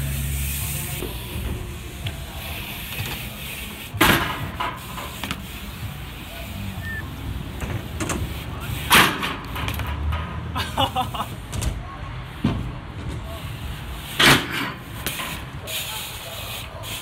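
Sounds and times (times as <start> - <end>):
bike clicks and rattles: 0.1 - 17.0
bmx bike banging down: 4.0 - 5.6, 7.5 - 10.6, 14.1 - 15.6.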